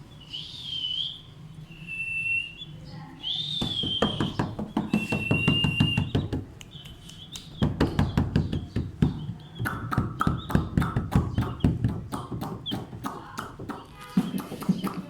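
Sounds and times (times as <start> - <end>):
quick uneven tapping: 3.6 - 15.0.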